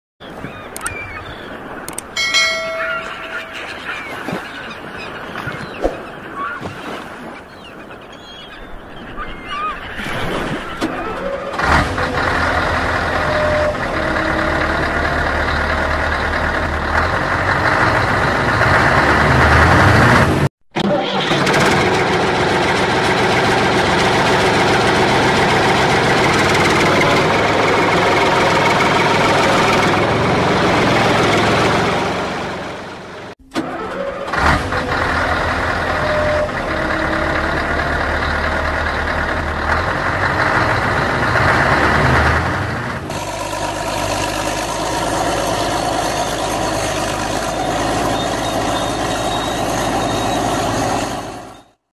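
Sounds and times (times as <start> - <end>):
vehicle engine running: 11.6 - 51.8.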